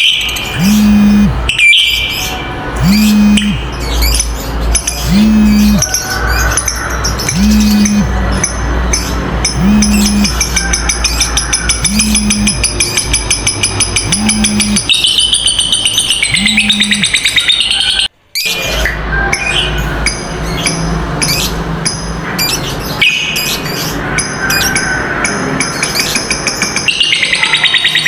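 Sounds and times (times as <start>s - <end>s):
lovebird chattering trill: 2.8s - 6.0s, 7.2s - 8.2s, 8.9s - 18.1s.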